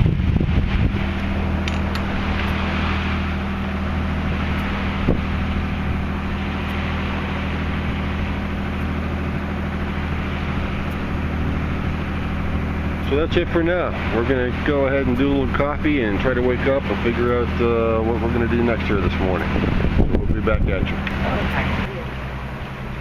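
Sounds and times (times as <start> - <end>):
wind on microphone: 0.0 - 14.0, 19.0 - 21.9
boat engine droning: 0.0 - 23.0
water rushing: 0.0 - 23.0.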